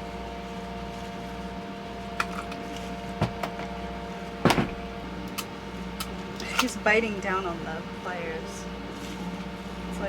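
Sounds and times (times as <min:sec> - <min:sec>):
boat machinery humming: 0:00.0 - 0:10.0
clicks and knocks: 0:03.2 - 0:03.7, 0:04.4 - 0:04.9.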